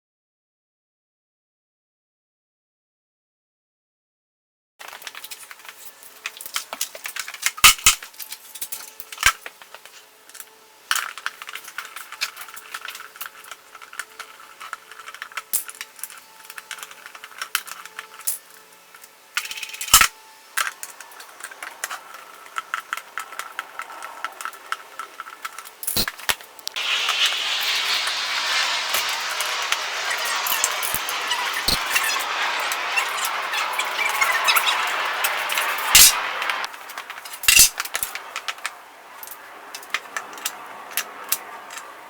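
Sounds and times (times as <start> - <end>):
steady hiss: 4.8 - 42.0
metal bolts and tools clinking: 36.9 - 38.6.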